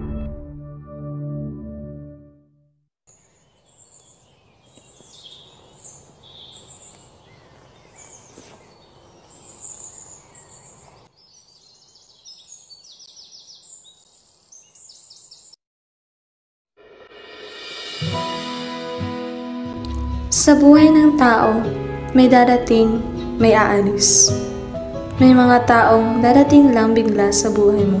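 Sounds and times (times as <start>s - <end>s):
outdoor background hiss: 3.1s - 15.4s
small birds chirping and twittering: 3.1s - 15.6s.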